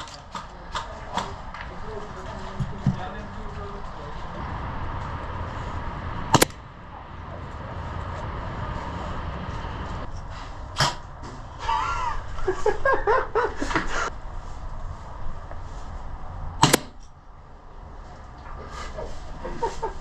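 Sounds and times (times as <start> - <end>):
voices calling out: 0.0 - 14.1
background hum: 0.0 - 20.0
airsoft gun shots: 6.3 - 6.6, 16.6 - 17.1.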